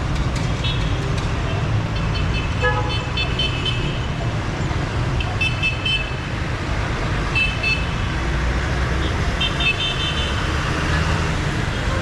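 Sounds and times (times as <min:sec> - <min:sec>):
traffic engine and tyre rumble: 0:00.0 - 0:12.0
car horns beeping: 0:02.0 - 0:03.9.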